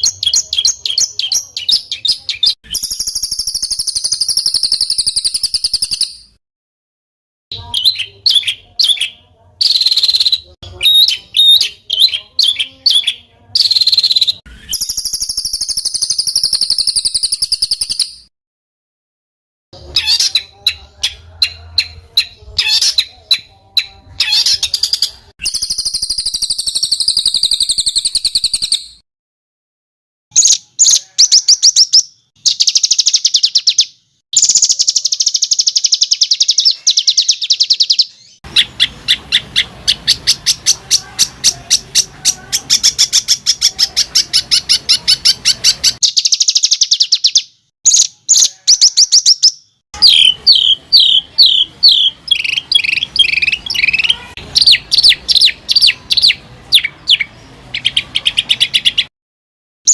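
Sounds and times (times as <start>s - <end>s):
songbird rapid harsh song: 0.0s - 6.4s, 7.5s - 18.3s, 19.8s - 29.0s, 30.3s - 59.1s.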